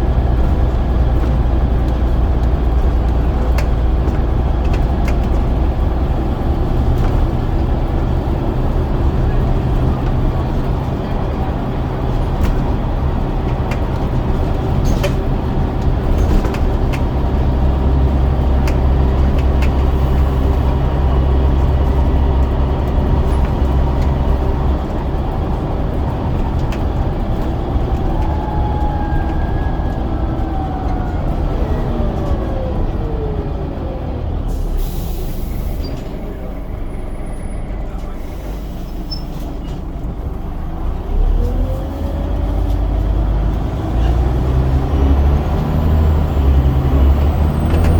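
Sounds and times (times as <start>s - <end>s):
bus diesel engine drone: 0.0s - 47.9s.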